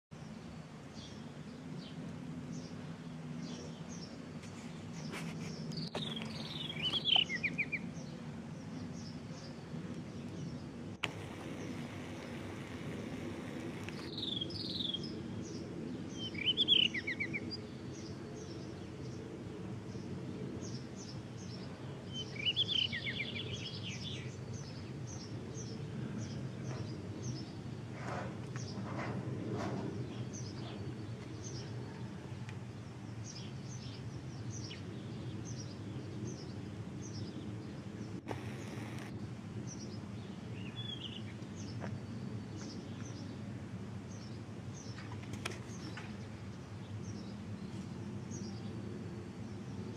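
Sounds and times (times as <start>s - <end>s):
low steady hum: 0.2s - 49.9s
bird song whistle and trill: 5.8s - 7.9s, 13.9s - 15.2s, 16.1s - 17.6s, 22.1s - 24.8s, 40.5s - 41.7s.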